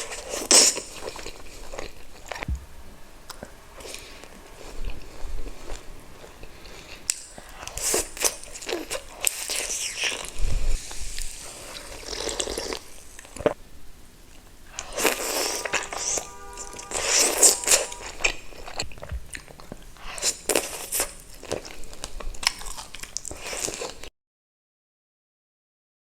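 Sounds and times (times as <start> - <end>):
biting and chewing: 16.9 - 24.1.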